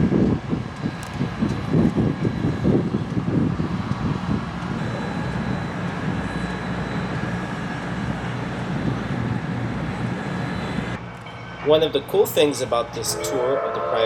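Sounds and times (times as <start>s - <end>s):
faint high ringing: 10.3s - 14.0s.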